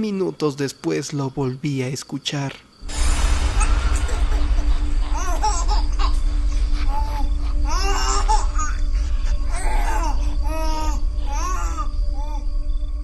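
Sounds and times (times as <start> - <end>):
low droning music: 2.8 - 13.0
baby crying: 5.0 - 12.5.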